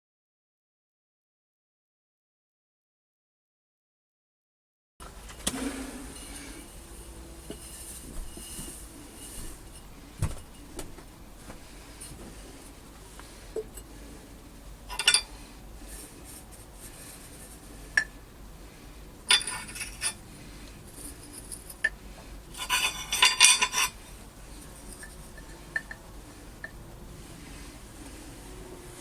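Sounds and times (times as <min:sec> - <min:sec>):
metal objects clattering: 0:14.9 - 0:15.3, 0:19.3 - 0:20.2, 0:22.5 - 0:24.0.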